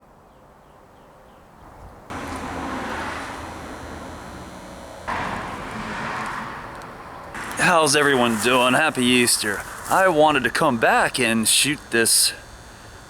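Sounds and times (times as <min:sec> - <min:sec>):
motor vehicle running: 0:02.1 - 0:13.0.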